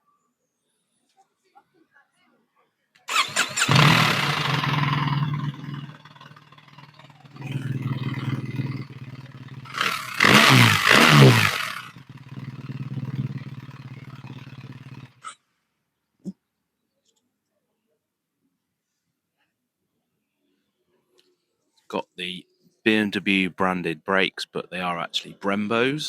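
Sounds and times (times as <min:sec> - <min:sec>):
motorcycle throttle blips: 0:03.1 - 0:15.1
motorcycle engine starting and idling: 0:03.1 - 0:15.3.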